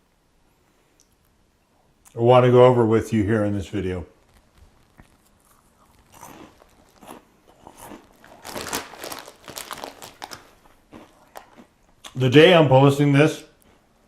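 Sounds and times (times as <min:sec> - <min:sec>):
person chewing crunchy snacks: 0:04.4 - 0:12.2.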